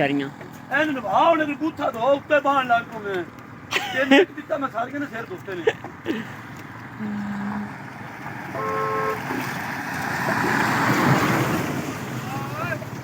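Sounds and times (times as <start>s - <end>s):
vehicle horn toots: 8.5s - 9.4s.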